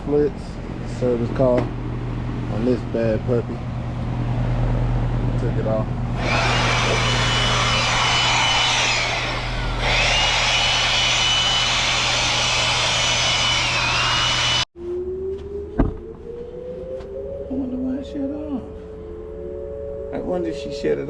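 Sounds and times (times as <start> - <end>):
motor-driven machine running: 6.0 - 14.7.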